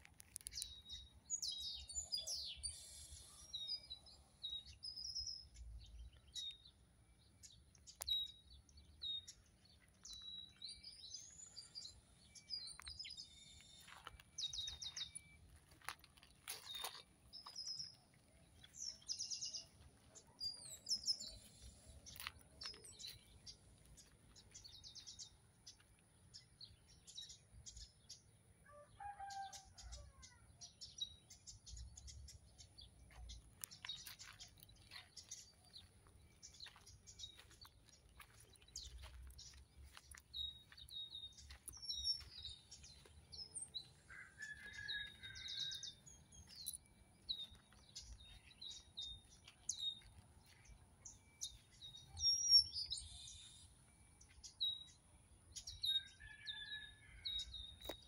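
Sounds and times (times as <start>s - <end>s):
birds chirping and whistling: 0.4s - 6.7s, 33.7s - 55.0s.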